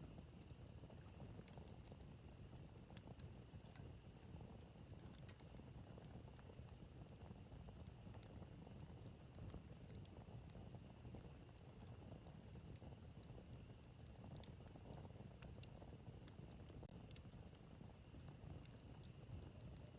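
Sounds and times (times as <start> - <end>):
low fire rumble: 0.0 - 19.9
campfire crackling and popping: 0.1 - 19.9.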